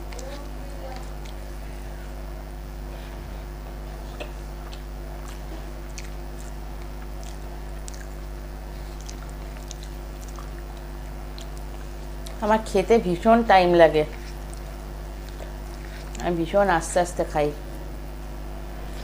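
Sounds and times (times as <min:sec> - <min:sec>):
low electrical hum: 0:00.0 - 0:19.0
person chewing: 0:01.0 - 0:01.5, 0:04.0 - 0:12.4, 0:14.1 - 0:16.2
wet mouth clicks and smacks: 0:04.2 - 0:08.2, 0:09.0 - 0:12.4.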